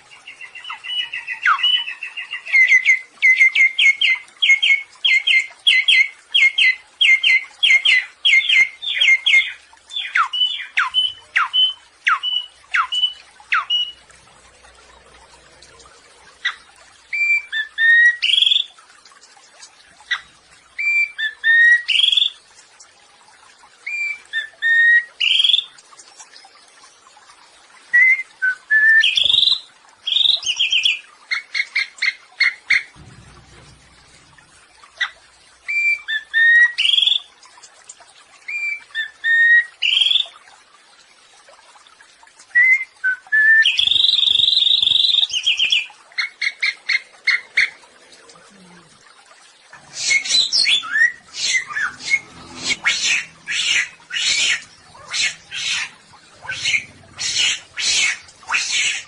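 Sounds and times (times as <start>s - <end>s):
bird singing whistled notes: 50.0s - 54.6s.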